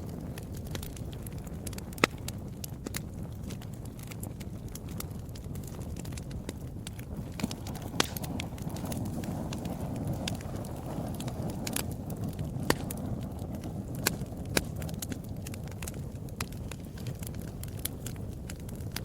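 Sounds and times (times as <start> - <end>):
fire crackling and popping: 0.0 - 19.0
fire rumbling: 0.0 - 19.0.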